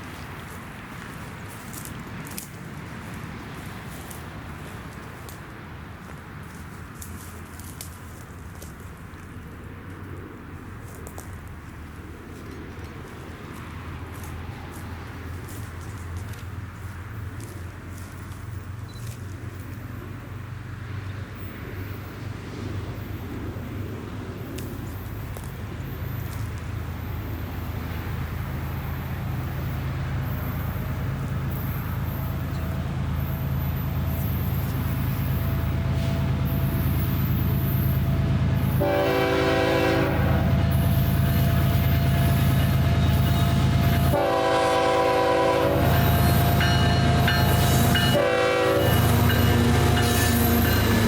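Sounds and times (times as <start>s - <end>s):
diesel locomotive engine rumble: 0.0s - 51.0s
train air horn blasts: 35.3s - 51.0s.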